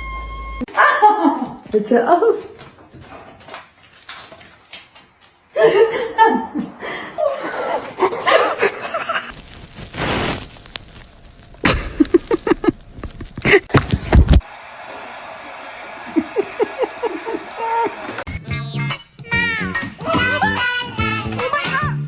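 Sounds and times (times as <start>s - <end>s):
person laughing: 5.6s - 9.3s, 11.6s - 13.8s, 16.1s - 18.2s.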